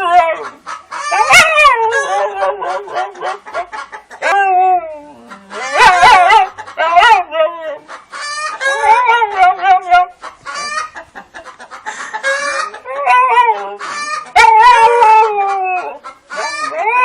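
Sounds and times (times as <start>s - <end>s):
animal giving wavering calls: 12.4s - 17.0s.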